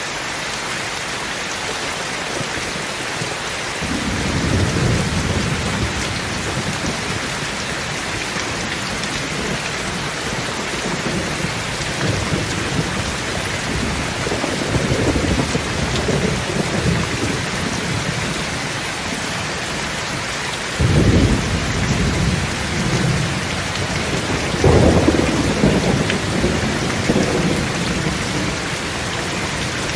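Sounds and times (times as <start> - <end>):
heavy rain: 0.0 - 29.9
thunder clap: 3.8 - 18.2, 20.8 - 29.9
thunder rumbling: 3.8 - 19.4, 20.8 - 29.9.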